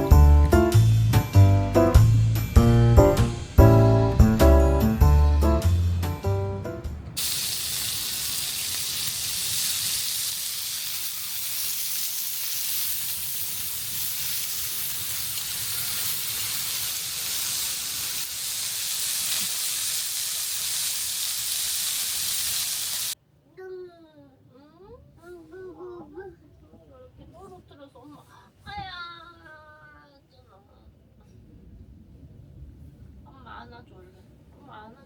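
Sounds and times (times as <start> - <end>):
background music: 0.0 - 7.2
steady hiss: 7.1 - 23.2.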